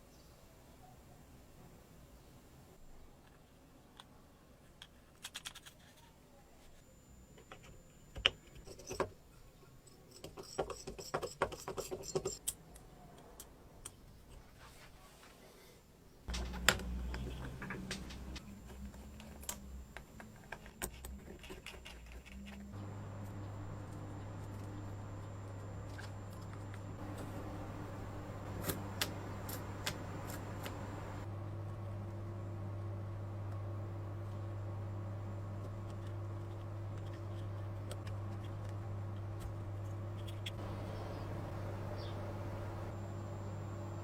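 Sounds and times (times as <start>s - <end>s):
steady low hum: 16.3s - 44.0s.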